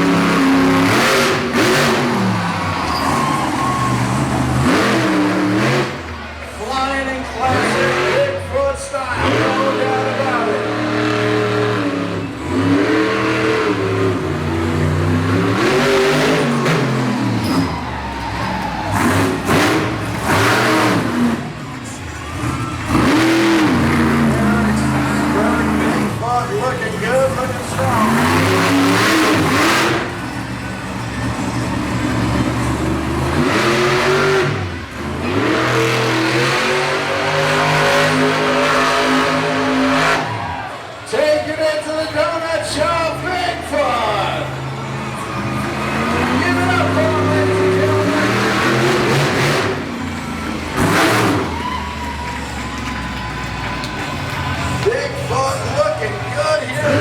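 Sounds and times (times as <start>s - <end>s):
truck engine revving: 0.0s - 57.0s.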